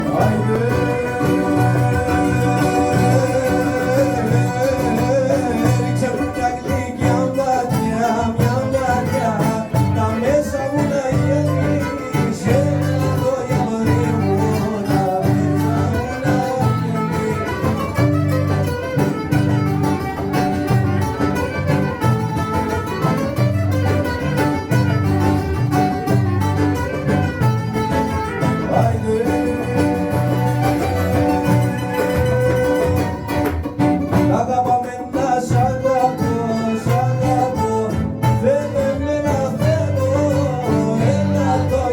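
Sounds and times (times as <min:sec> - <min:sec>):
plucked strings rhythm: 0:00.0 - 0:41.9
ornamented violin melody: 0:10.0 - 0:41.9.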